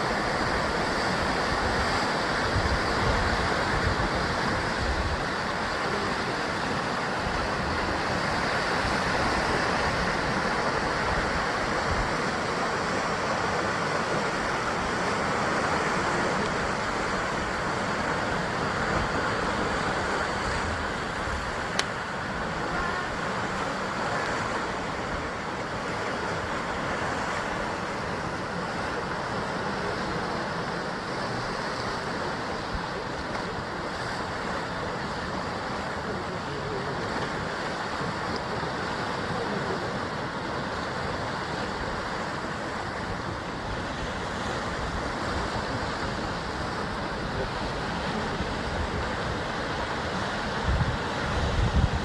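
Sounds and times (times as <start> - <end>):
surf breaking on rocky shore: 0.0 - 52.0.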